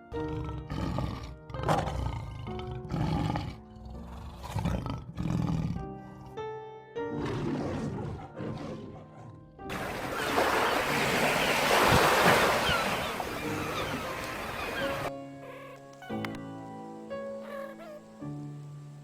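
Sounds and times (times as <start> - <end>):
background music: 0.0 - 11.3, 12.6 - 19.0
big cat roaring: 0.1 - 5.9, 7.2 - 9.4.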